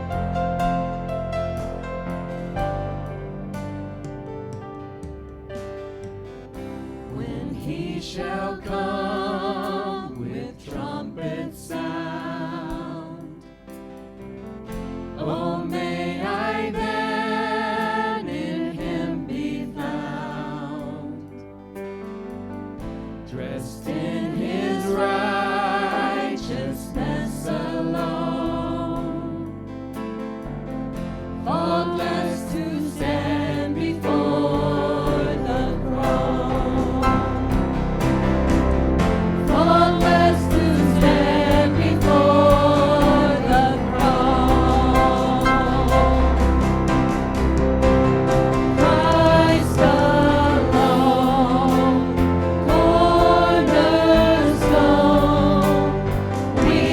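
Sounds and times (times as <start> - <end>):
instrumental accompaniment: 0.0 - 20.2, 21.4 - 56.9
person singing worship song: 6.9 - 13.8, 15.0 - 21.5, 23.2 - 29.8, 31.4 - 38.4, 39.3 - 47.3, 48.5 - 56.9.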